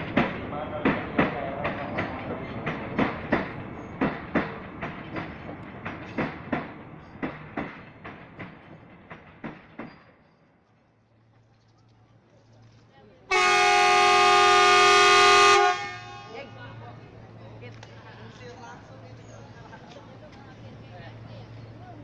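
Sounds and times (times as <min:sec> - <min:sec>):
wheels clacking over track joints: 0:00.0 - 0:13.0
train rumble: 0:00.0 - 0:22.0.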